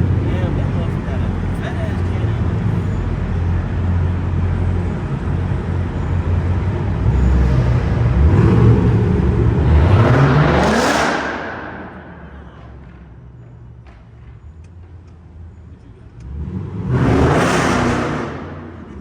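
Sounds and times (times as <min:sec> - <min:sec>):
car engine revving: 0:05.1 - 0:13.1, 0:16.0 - 0:19.0.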